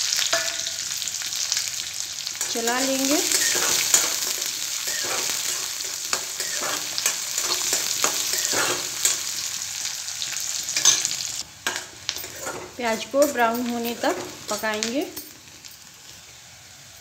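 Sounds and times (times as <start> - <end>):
onions sizzling in hot oil: 0.0 - 17.0
metal spatula scraping a pan: 2.4 - 9.5, 10.7 - 14.8.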